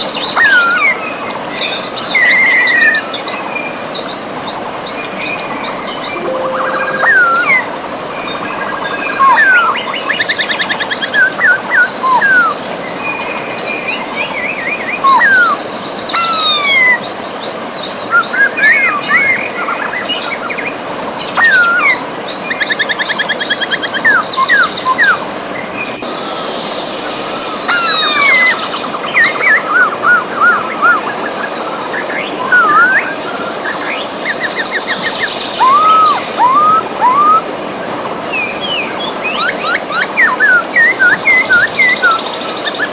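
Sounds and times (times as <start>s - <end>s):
birds singing and calling: 9.2s - 42.9s
river rushing: 18.5s - 42.9s.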